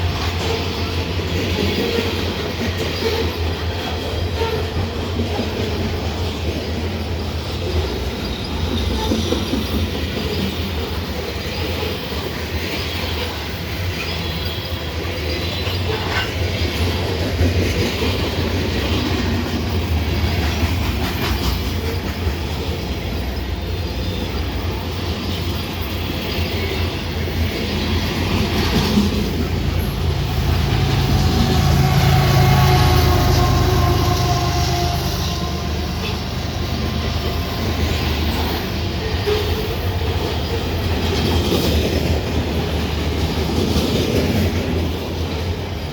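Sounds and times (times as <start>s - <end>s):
railcars rumbling past: 0.0s - 45.9s.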